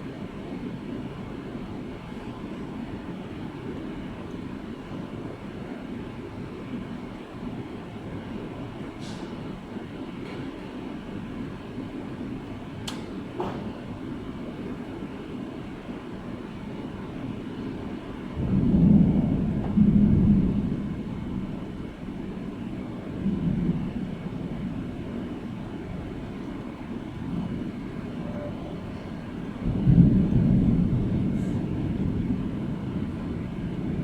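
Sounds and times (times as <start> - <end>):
steady rain: 0.0 - 34.0
thunder rumbling: 16.6 - 34.0.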